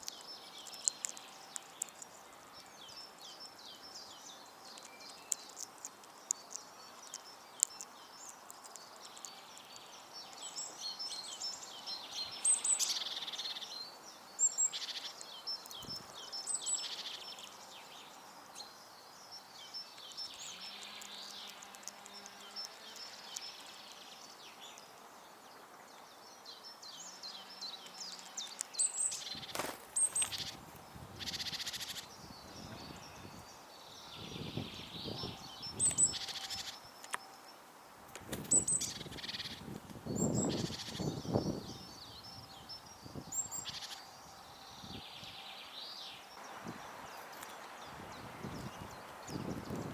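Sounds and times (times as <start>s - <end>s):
songbirds chirping: 0.0s - 49.9s
rustling noise: 29.3s - 31.0s.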